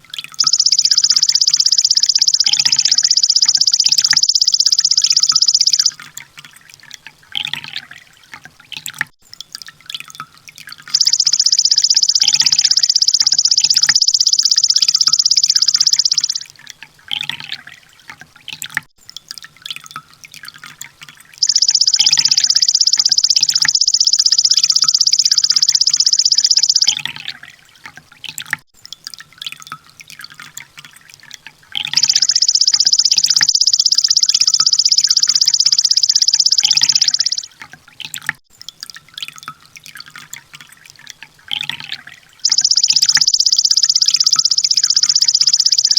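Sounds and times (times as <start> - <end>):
soft ticking bird chirps: 0.2 - 6.1, 7.4 - 8.1, 10.9 - 17.8, 21.4 - 27.6, 31.7 - 38.3, 41.5 - 45.9
high rapid bird trills: 0.4 - 6.0, 10.9 - 16.5, 21.4 - 27.1, 31.8 - 37.5, 42.4 - 45.9.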